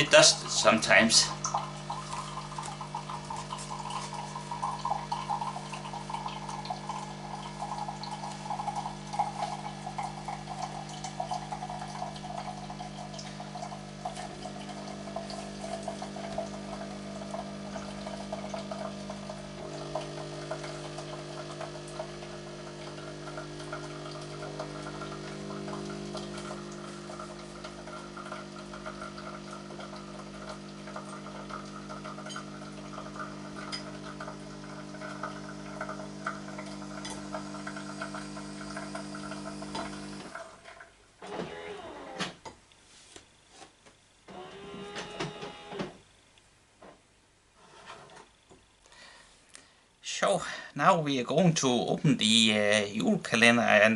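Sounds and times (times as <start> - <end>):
coffee machine electric hum: 0.0 - 42.4, 44.3 - 46.0
liquid running and filling: 0.0 - 42.4.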